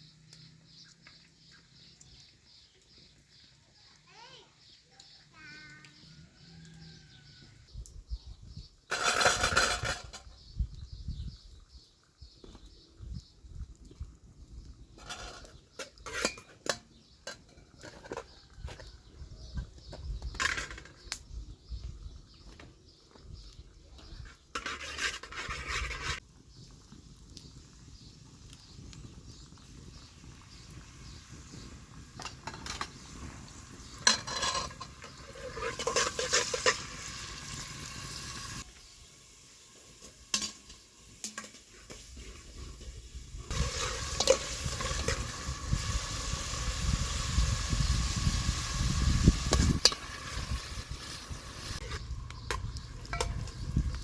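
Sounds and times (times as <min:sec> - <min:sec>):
utensil scraping a pan: 0:08.9 - 0:10.3, 0:15.0 - 0:18.9, 0:24.3 - 0:26.2, 0:32.2 - 0:38.6, 0:40.3 - 0:46.4, 0:48.1 - 0:54.0
food sizzling in a pan: 0:27.0 - 0:54.0.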